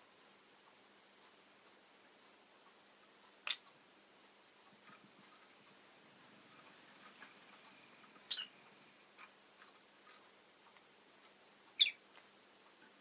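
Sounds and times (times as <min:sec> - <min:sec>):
bird chirps: 0:08.2 - 0:08.6, 0:11.8 - 0:12.0.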